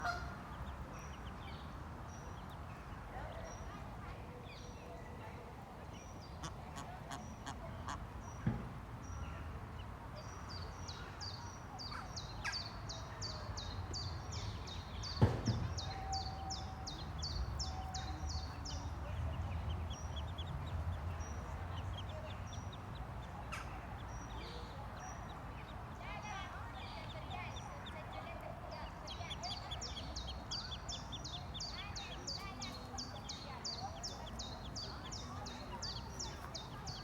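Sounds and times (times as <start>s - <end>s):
ducklings peeping: 0.0s - 3.7s, 5.8s - 37.0s
sharp knock: 15.2s - 16.0s.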